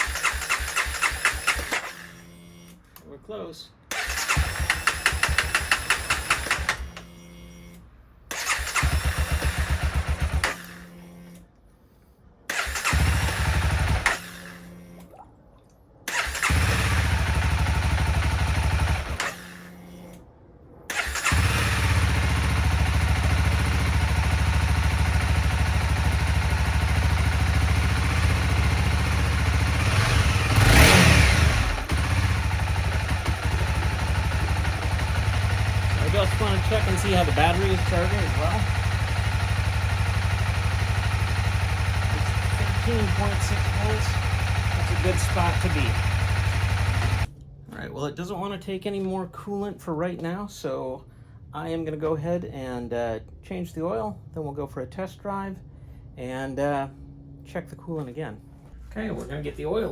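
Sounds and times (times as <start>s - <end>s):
motorcycle engine running: 0.0s - 2.4s, 4.0s - 7.0s, 8.5s - 10.9s, 12.8s - 14.8s, 16.1s - 19.6s, 21.2s - 47.3s
electric starter cranking engine: 0.0s - 2.9s, 3.9s - 11.5s, 12.5s - 15.0s, 16.1s - 20.2s, 20.9s - 47.3s.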